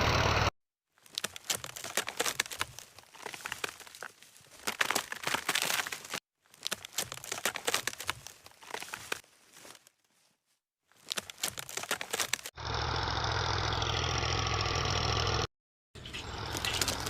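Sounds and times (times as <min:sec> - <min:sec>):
crinkling of dry light material: 0:00.9 - 0:12.5.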